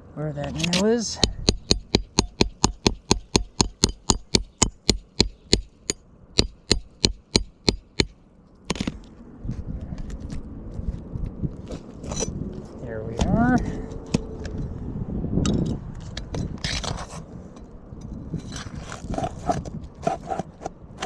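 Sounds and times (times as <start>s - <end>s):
hammer striking metal bar: 1.2s - 8.1s
scraping: 15.6s - 21.0s.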